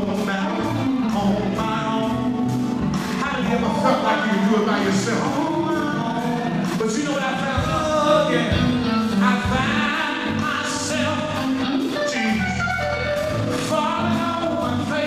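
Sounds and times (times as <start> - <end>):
gospel group singing: 0.0 - 15.0
instrumental backing: 0.0 - 15.0.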